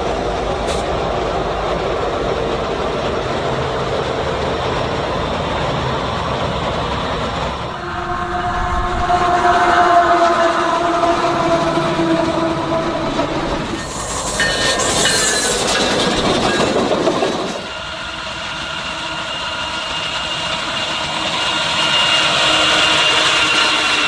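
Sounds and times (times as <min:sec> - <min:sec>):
freight train rolling on rails: 0:00.0 - 0:24.0
wheels squealing on rail: 0:07.6 - 0:24.0.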